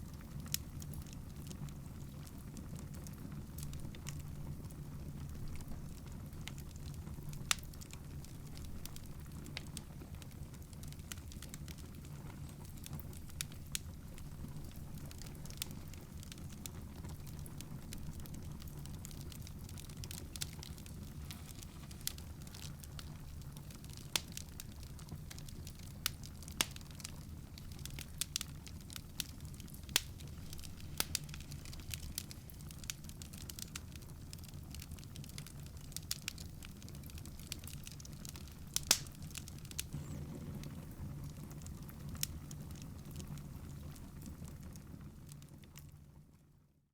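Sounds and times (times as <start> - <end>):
wood fire crackling: 0.0 - 46.6
sharp pops from fire: 6.4 - 45.4
low steady hum: 10.0 - 34.0, 38.5 - 43.0.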